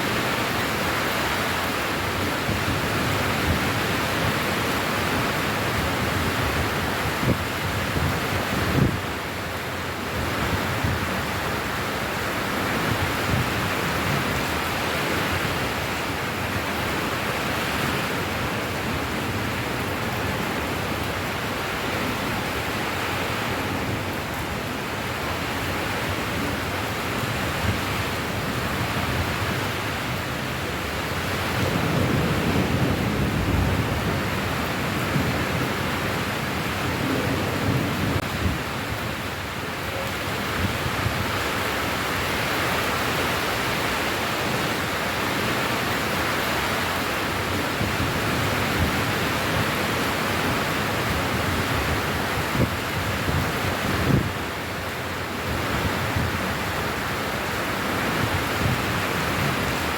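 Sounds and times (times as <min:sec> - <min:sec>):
steady rainfall hiss: 0:00.0 - 0:59.9.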